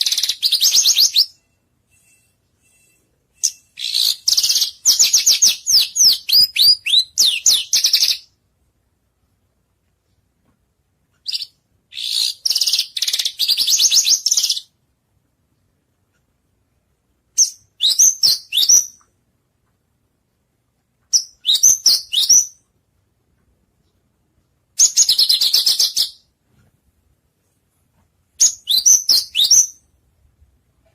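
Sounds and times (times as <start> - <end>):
songbird trills and whistles: 17.4 - 19.1, 21.2 - 22.6, 28.4 - 29.8.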